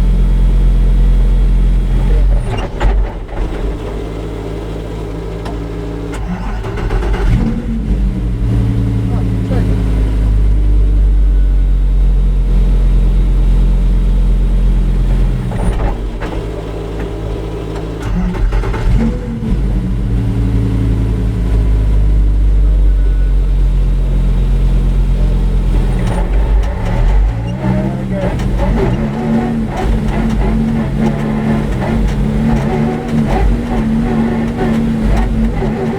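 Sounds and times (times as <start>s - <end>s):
race car engine running hard: 0.0s - 35.9s.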